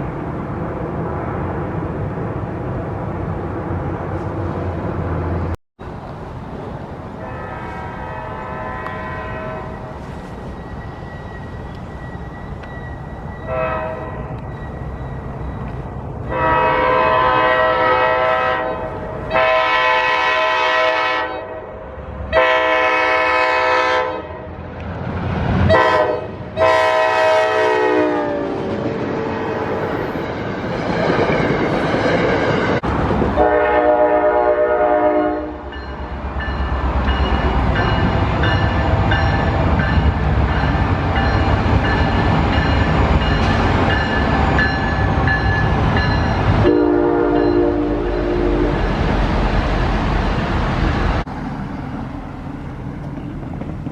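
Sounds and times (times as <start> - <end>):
train rumbling and clattering: 0.0 - 21.0, 24.4 - 53.9
locomotive air horn blasts: 7.2 - 9.9, 13.5 - 14.3, 16.3 - 21.7, 22.3 - 24.5, 25.7 - 28.6, 33.4 - 35.8, 46.6 - 48.8.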